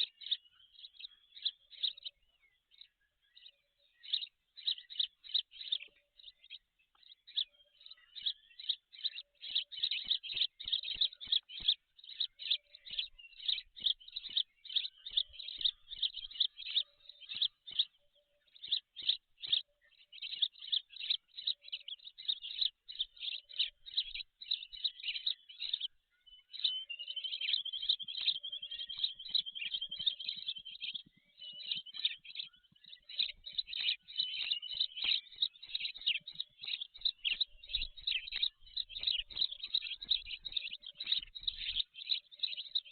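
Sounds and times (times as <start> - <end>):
bird chirping rapidly: 26.6 - 42.9.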